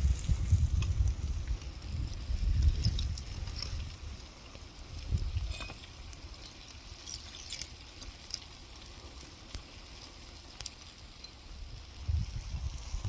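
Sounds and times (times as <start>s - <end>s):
low wind rumble: 0.0s - 6.9s, 11.5s - 13.0s
lava crust crackling and ticking: 0.0s - 13.0s.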